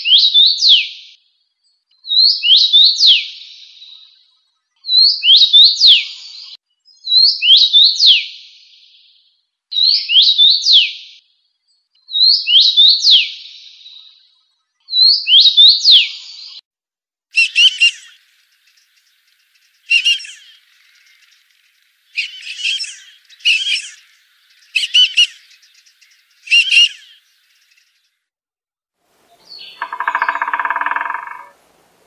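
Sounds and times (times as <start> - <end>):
harsh bird calls: 17.4 - 28.0, 29.3 - 31.6.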